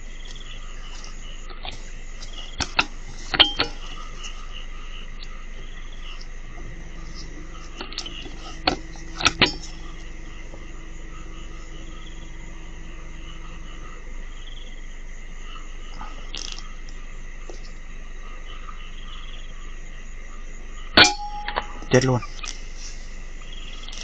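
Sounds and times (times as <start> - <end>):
frogs calling: 0.0 - 24.0
insects calling: 0.0 - 24.0.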